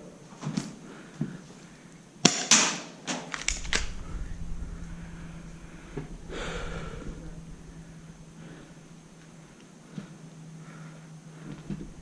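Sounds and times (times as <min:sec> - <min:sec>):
short rush of noise: 0:03.4 - 0:09.3
steady low hum: 0:03.4 - 0:12.0.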